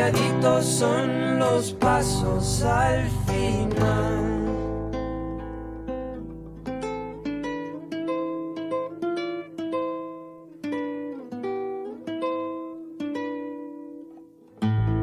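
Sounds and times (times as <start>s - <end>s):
guitar picking single notes: 0.0s - 15.0s.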